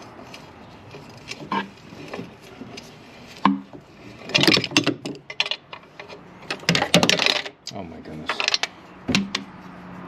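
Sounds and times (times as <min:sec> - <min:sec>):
bolts rattling: 0:03.4 - 0:09.5.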